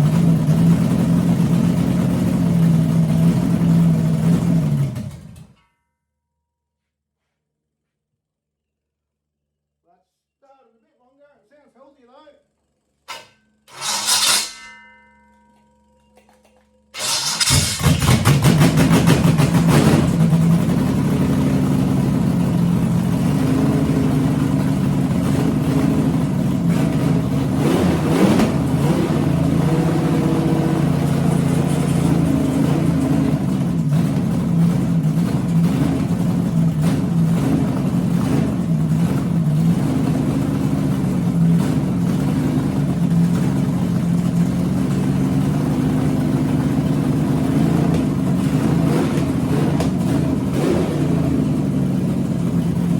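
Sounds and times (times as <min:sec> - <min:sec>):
engine fast idle: 0:17.0 - 0:27.3, 0:30.8 - 0:52.9
engine revving: 0:17.0 - 0:52.9.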